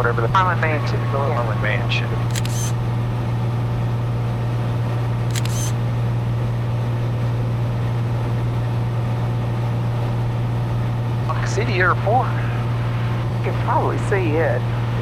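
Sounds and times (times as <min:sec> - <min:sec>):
plane engine and propeller drone: 0:00.0 - 0:15.0
short high clicks: 0:02.3 - 0:02.8, 0:05.3 - 0:05.8.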